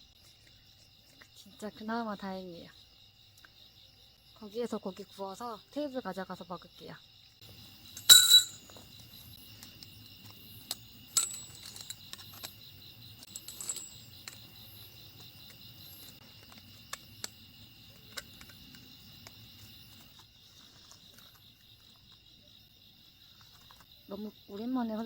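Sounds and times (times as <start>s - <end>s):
insects chirring: 0.0s - 25.0s
metal fire pit clanking: 8.0s - 8.8s.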